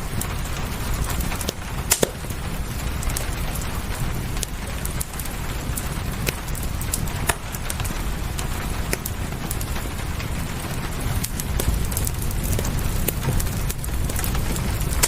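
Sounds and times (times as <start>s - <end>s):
fireplace crackling: 0.0s - 15.0s
rain hiss: 0.0s - 15.0s
sharp pops: 1.8s - 2.3s.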